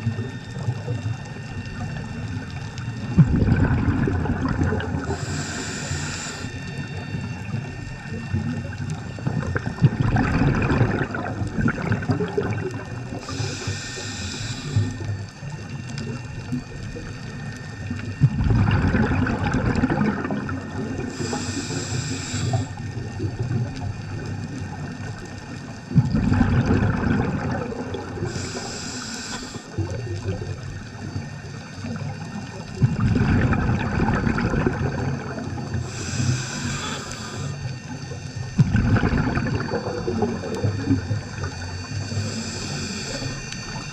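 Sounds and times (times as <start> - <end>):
exhaled bubbles underwater: 0.0 - 43.9
regulator hiss: 3.8 - 10.0, 11.0 - 18.3, 20.3 - 26.0, 27.4 - 32.8, 35.1 - 43.9.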